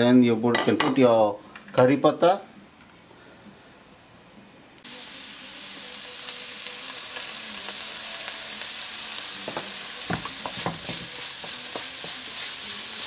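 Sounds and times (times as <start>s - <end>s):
onion frying in hot oil: 4.8s - 13.0s.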